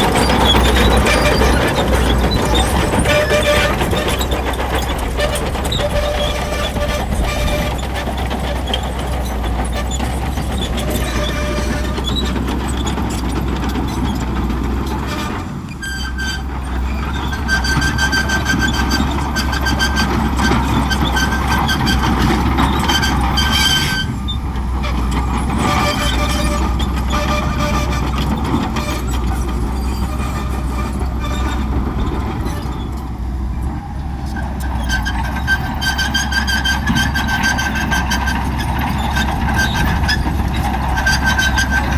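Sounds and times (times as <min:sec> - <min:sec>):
high-pitched metallic squealing: 0:00.0 - 0:14.2, 0:14.9 - 0:24.4
bulldozer diesel engine running: 0:00.0 - 0:41.9.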